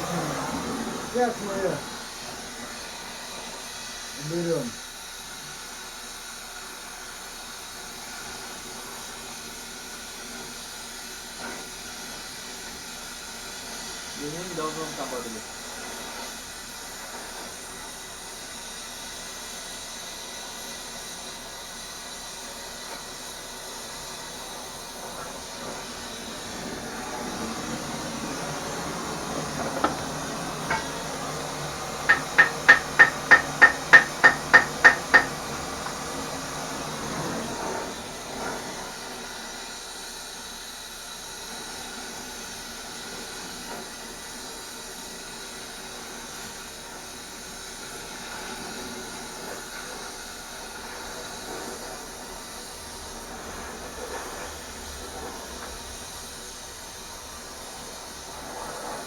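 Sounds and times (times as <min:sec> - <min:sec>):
steady hiss: 0:00.0 - 0:59.0
hammer striking steel: 0:29.7 - 0:31.0, 0:32.0 - 0:35.4.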